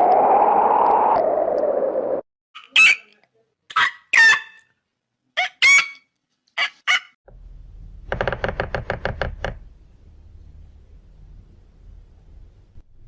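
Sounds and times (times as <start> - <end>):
fowl squawking: 2.6 - 3.1, 5.4 - 6.0, 6.6 - 7.2
rapid knocks: 8.0 - 9.6
low steady hum: 9.5 - 13.0.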